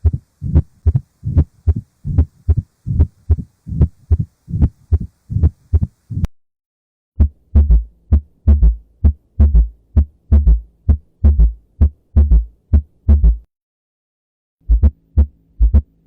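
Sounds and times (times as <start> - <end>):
heartbeat in gallop rhythm: 0.0 - 6.3, 7.2 - 13.5, 14.6 - 16.0.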